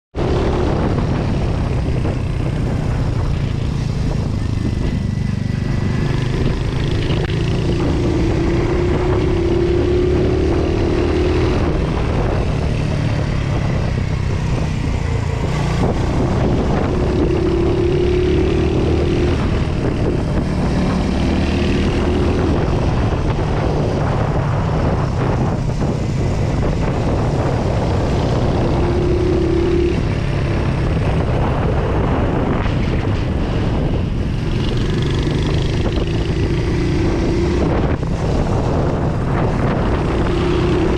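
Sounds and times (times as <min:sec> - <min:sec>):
motorcycle engine revving: 0:00.1 - 0:40.9.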